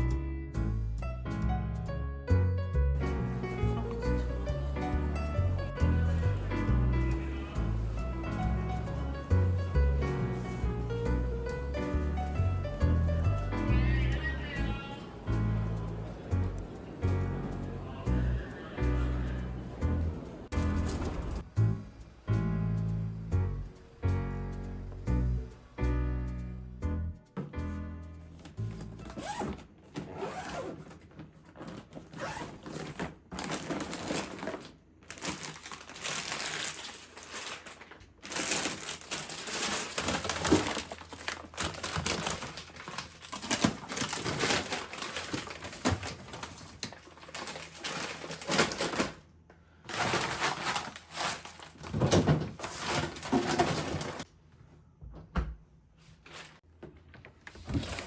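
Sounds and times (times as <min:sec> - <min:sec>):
plastic packaging crinkling: 0:28.4 - 0:49.3, 0:49.9 - 0:54.3, 0:57.4 - 0:58.0.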